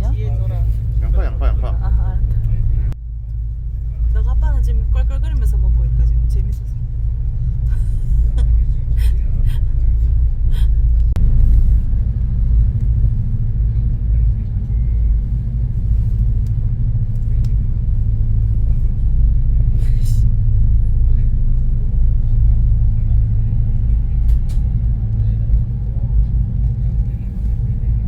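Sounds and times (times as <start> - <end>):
ferry engines droning: 0.0 - 28.0.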